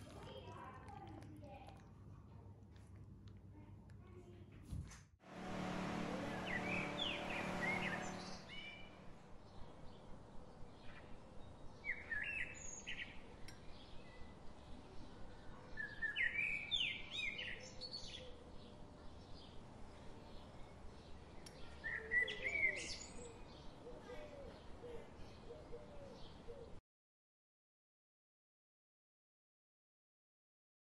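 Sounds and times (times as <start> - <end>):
loud rushing noise: 5.3 - 9.4
steady low hum: 5.3 - 9.5
birds chirping: 5.3 - 10.1.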